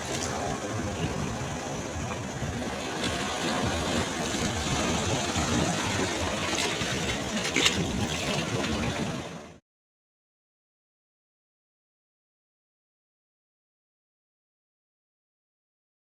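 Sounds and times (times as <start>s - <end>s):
sea waves washing on shore: 0.0s - 9.6s.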